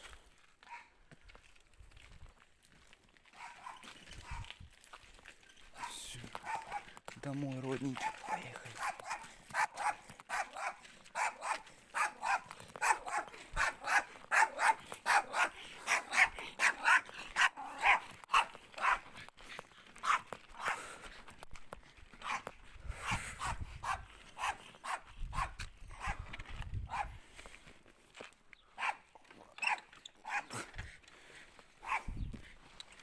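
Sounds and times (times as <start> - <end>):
dog barking: 0.7 - 0.9, 3.3 - 4.5, 5.8 - 7.0, 8.0 - 19.1, 20.0 - 20.8, 22.2 - 22.5, 23.4 - 26.2, 26.9 - 27.2, 28.8 - 30.7, 31.8 - 32.1.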